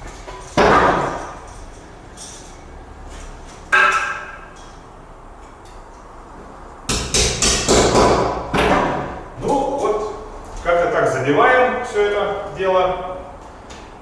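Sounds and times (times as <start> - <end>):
hammer blows on metal anchors: 3.7 - 4.8.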